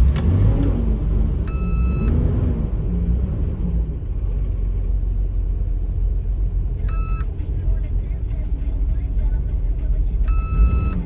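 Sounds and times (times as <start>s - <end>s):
short electronic beep: 1.5s - 2.2s, 6.8s - 7.3s, 10.2s - 11.0s.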